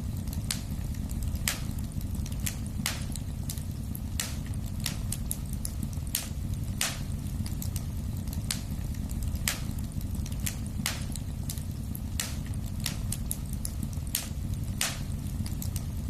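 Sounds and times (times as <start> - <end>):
fire flames rumbling: 0.0 - 16.0
wood fire crackling and popping: 0.0 - 16.0.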